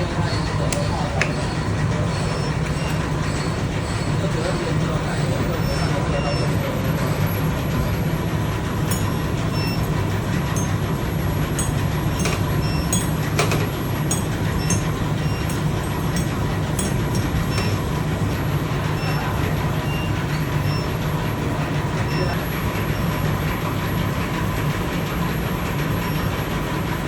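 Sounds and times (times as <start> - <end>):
furnace hum and rumble: 0.0 - 27.0
thin high tone: 8.8 - 18.4.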